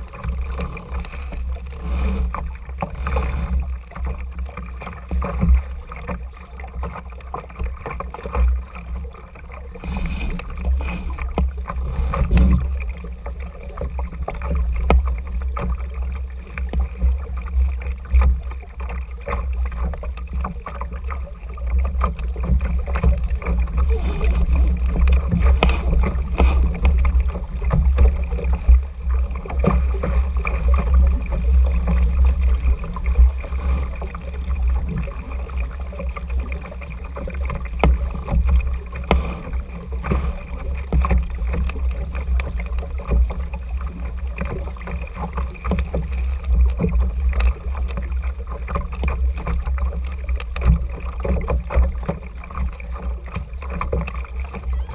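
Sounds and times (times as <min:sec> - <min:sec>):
short knocks from boat: 0:00.0 - 0:15.9, 0:21.8 - 0:35.1, 0:37.2 - 0:43.6
low wind rumble on microphone: 0:00.0 - 0:54.9
water slapping against hull: 0:00.0 - 0:54.9.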